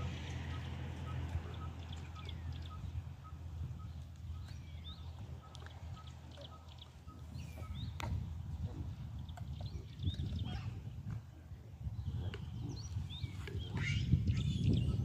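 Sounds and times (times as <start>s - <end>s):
steady low rumble: 0.0s - 15.0s
bird pips: 0.5s - 8.2s, 12.0s - 15.0s.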